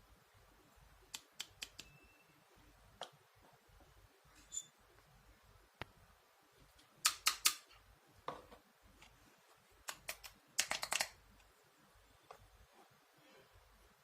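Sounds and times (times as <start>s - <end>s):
plastic toys clicking: 9.9s - 11.2s.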